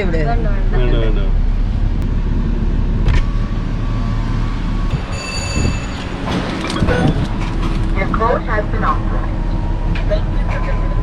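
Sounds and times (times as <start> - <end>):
car wash machinery rumble: 0.0 - 11.0
machinery clattering: 4.9 - 11.0
short high squeal: 5.0 - 6.1.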